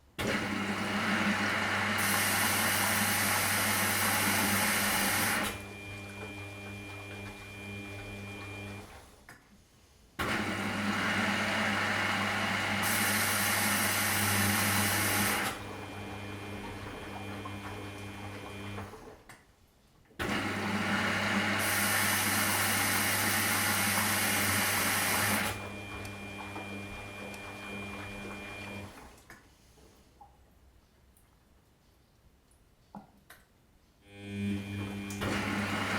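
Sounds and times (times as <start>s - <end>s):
washing machine motor humming: 0.2s - 9.0s, 10.2s - 19.2s, 20.2s - 29.2s, 34.1s - 35.9s
water rushing and laundry tumbling: 20.4s - 29.2s, 34.9s - 35.9s.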